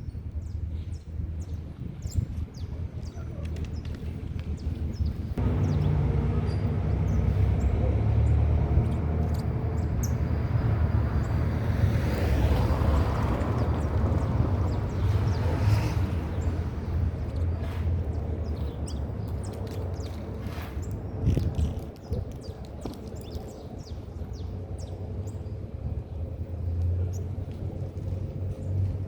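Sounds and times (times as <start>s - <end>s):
vehicle engine humming: 5.2s - 20.4s
vehicle passing: 5.4s - 20.9s.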